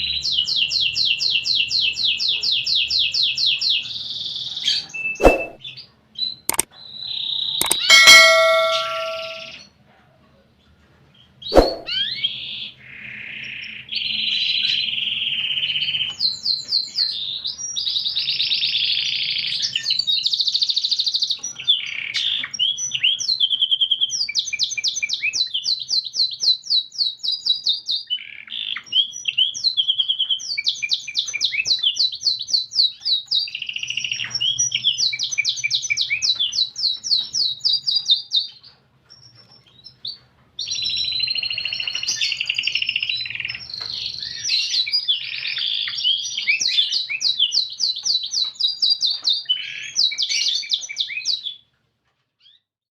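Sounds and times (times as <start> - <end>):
canary singing trills: 0.0 - 9.6, 11.5 - 51.6.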